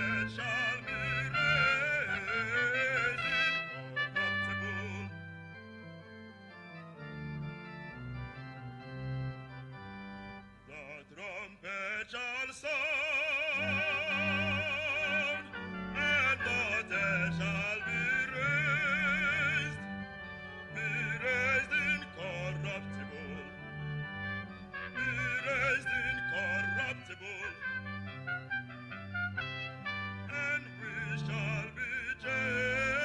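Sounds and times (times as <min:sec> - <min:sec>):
bass voice singing with vibrato: 0:00.0 - 0:05.2, 0:10.7 - 0:19.9, 0:20.8 - 0:23.6, 0:25.0 - 0:27.6, 0:30.3 - 0:33.0
instrumental accompaniment: 0:00.0 - 0:11.4, 0:13.2 - 0:33.0.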